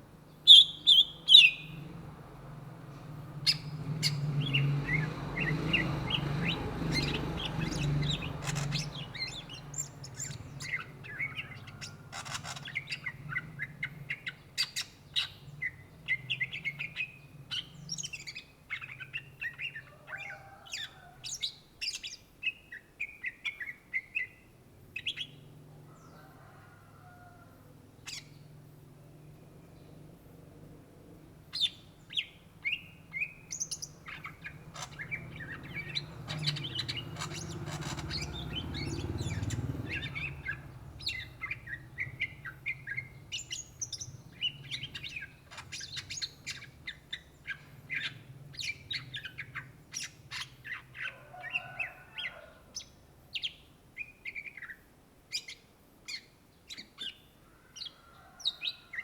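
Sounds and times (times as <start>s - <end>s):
bird singing chirps and whistles: 0.4s - 1.8s, 31.6s - 51.1s.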